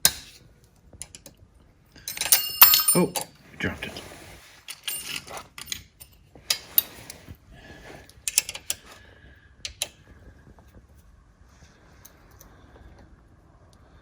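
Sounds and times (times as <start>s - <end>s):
metal tools clinking against bolts: 2.0s - 3.4s, 4.6s - 7.1s, 8.3s - 8.9s.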